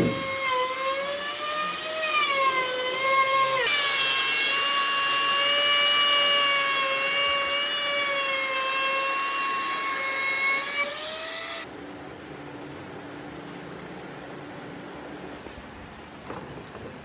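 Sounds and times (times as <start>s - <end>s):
power tool whining on wood: 0.0s - 11.7s.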